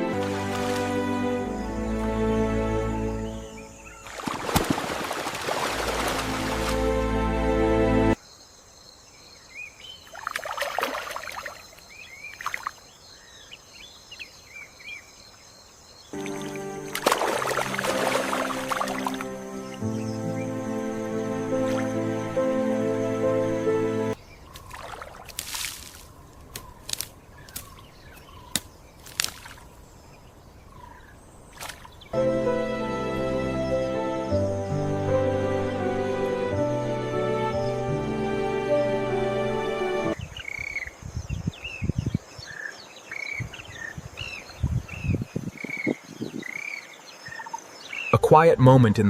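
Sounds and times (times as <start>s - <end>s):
water splashing: 0.0s - 1.5s, 4.0s - 7.6s, 10.1s - 12.8s, 16.2s - 19.7s, 24.5s - 27.8s, 28.4s - 29.8s, 31.5s - 32.1s
music: 0.0s - 4.0s, 5.8s - 8.2s, 16.2s - 24.2s, 32.2s - 40.2s
small birds chirping: 8.2s - 16.6s, 24.0s - 32.2s, 40.1s - 48.8s
insect drone: 8.2s - 27.9s.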